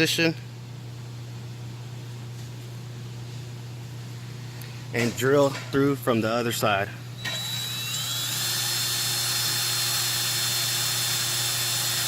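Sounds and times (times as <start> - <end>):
electric power drill whining: 7.2 - 12.0.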